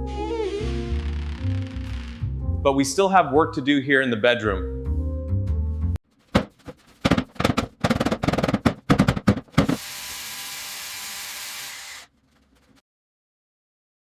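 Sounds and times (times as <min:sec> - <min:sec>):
irregular sharp knocks: 0:06.3 - 0:09.8.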